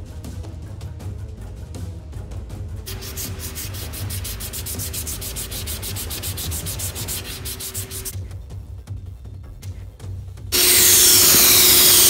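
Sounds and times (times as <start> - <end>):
hand-sanding steel blade: 2.9 - 8.2, 10.6 - 12.0.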